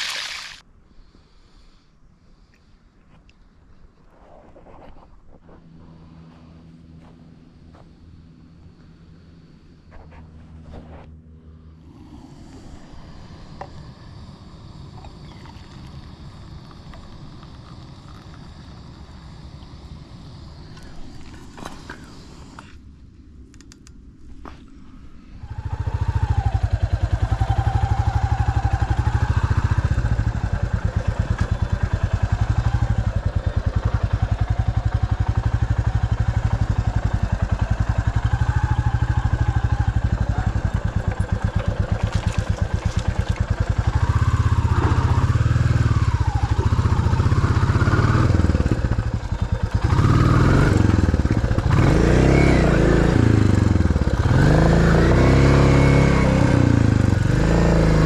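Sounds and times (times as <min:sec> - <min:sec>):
off-road vehicle engine revving: 0:25.4 - 0:58.0.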